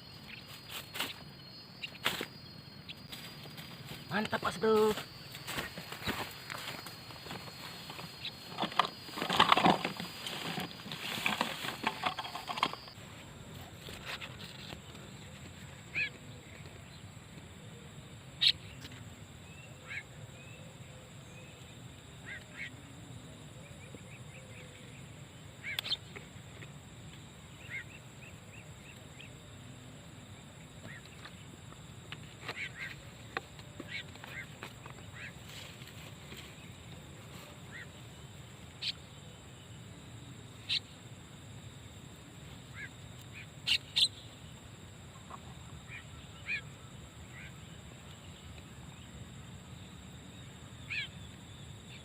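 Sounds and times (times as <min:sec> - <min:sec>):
starling chirping: 0:00.0 - 0:13.0, 0:42.7 - 0:44.3, 0:50.8 - 0:51.2.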